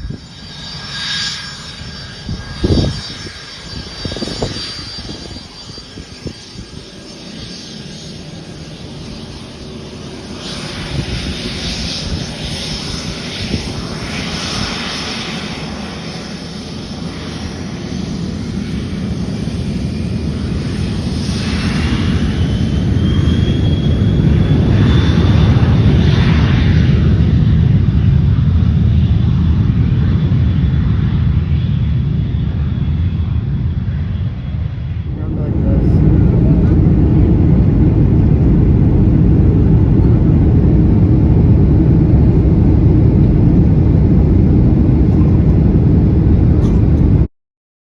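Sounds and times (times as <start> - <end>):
airplane engine rumble: 0.0 - 47.3
thin rising whine: 35.1 - 47.3.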